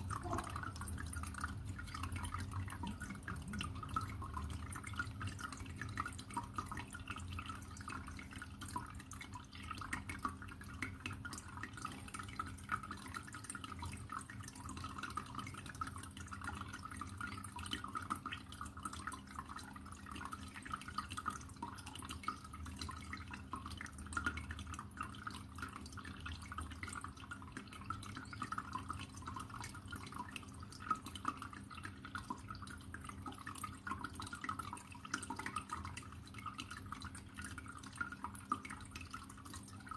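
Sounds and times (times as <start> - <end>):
low steady hum: 0.0 - 39.9
water drips and splashes: 0.0 - 39.9
water trickling: 0.0 - 39.9.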